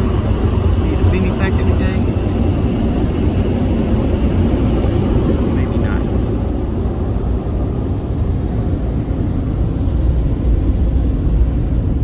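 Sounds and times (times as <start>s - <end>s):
car wash rumble: 0.0s - 12.0s.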